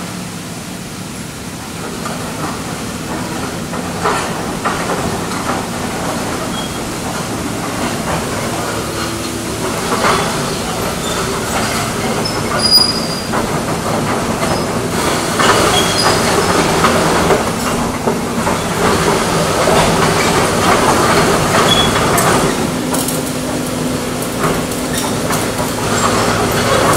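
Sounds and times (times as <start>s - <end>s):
excavator engine clattering: 0.0s - 26.9s
high-pitched metallic squeaks: 10.5s - 13.3s.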